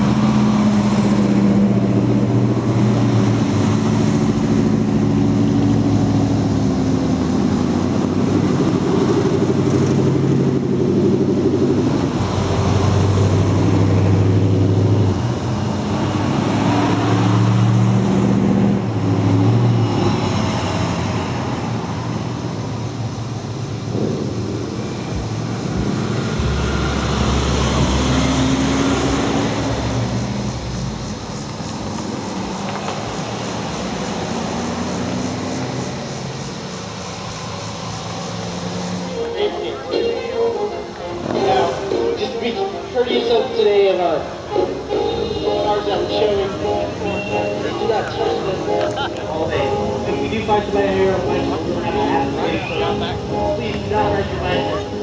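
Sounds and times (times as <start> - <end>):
deeper engine sound: 0.0 - 41.9
car engines passing: 0.0 - 55.0.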